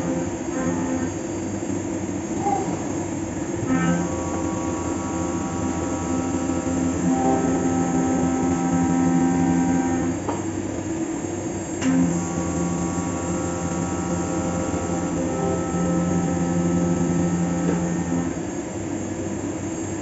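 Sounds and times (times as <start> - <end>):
milling machine cutting metal: 0.0 - 1.2, 3.5 - 10.2, 11.8 - 18.5.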